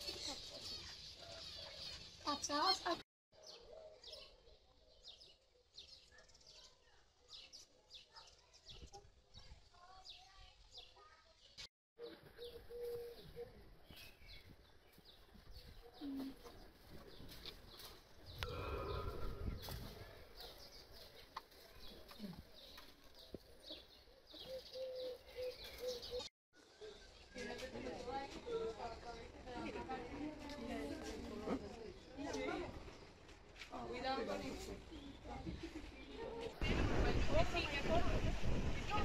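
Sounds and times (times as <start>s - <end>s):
faint bird chirping: 0.0s - 27.4s.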